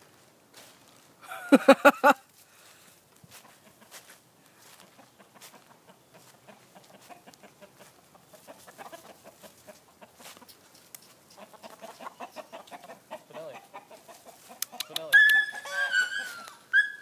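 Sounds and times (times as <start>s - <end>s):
chickens clucking: 3.3s - 16.8s.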